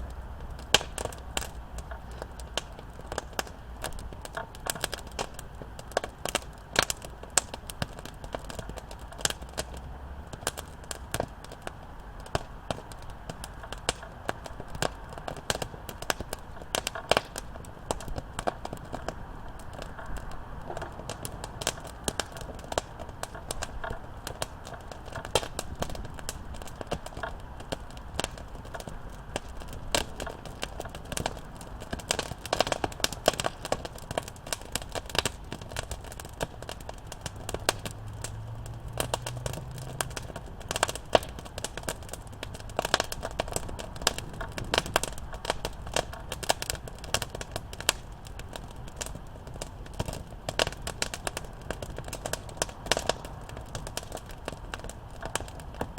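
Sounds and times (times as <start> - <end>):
campfire popping and snapping: 0.0 - 55.9
low rush of burning fire: 0.0 - 55.9.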